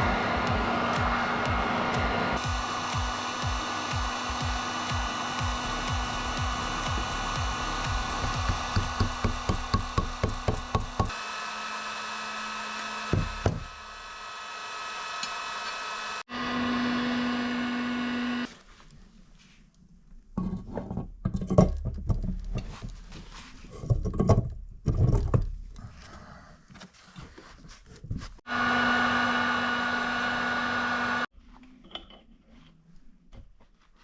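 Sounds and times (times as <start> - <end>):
hard parts knocking and scraping: 0.0 - 11.1, 20.3 - 26.0
power tool whining: 0.0 - 18.5, 28.5 - 31.3.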